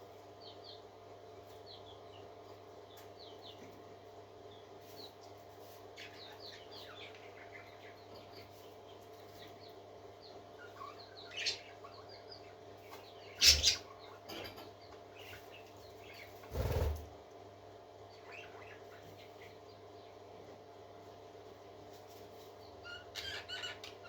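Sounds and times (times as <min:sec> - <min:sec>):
parakeets chirping: 0:06.0 - 0:08.4, 0:10.6 - 0:14.3, 0:18.2 - 0:19.7, 0:22.8 - 0:24.0.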